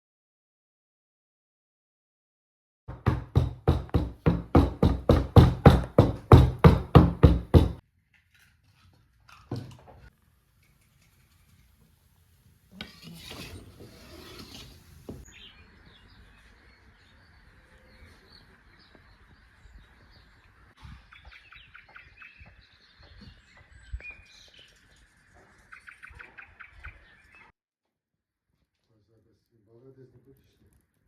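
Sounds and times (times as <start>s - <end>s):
sharp knocks: 2.9s - 7.8s
rustling: 8.3s - 15.3s.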